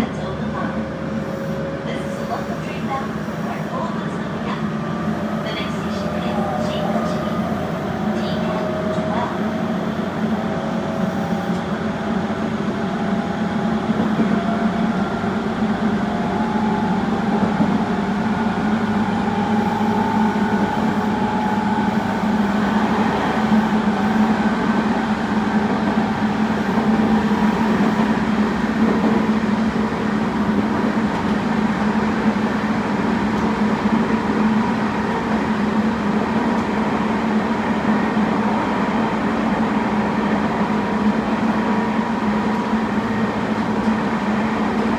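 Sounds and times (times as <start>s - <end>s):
electric train motors whining: 16.1s - 32.8s.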